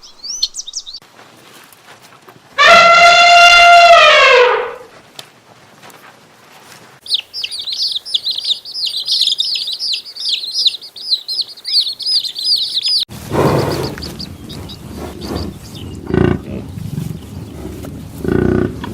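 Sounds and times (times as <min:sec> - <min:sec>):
bird chirping: 0:00.0 - 0:01.0, 0:07.0 - 0:17.9.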